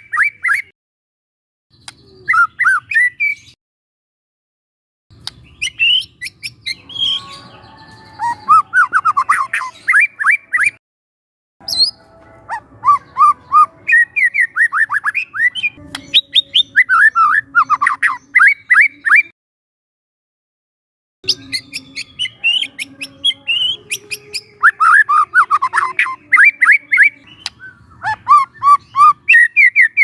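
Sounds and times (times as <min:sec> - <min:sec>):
bird singing whistled notes: 0:01.7 - 0:03.6, 0:05.4 - 0:10.8, 0:11.6 - 0:19.3, 0:21.3 - 0:30.0.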